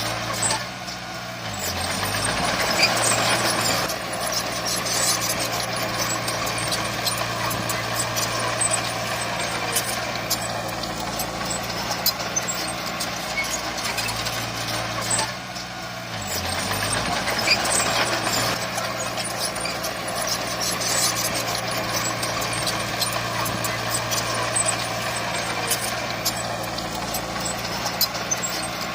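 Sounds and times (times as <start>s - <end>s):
heavy machinery diesel engine: 0.0s - 28.9s.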